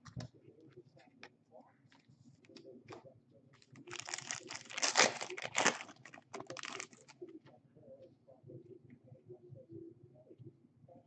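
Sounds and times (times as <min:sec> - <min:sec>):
wrapper tearing and crinkling: 0:03.9 - 0:07.1.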